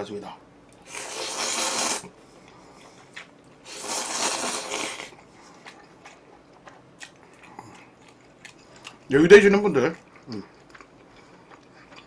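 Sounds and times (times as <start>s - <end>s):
noodle slurp: 0.8s - 2.1s, 3.6s - 5.2s.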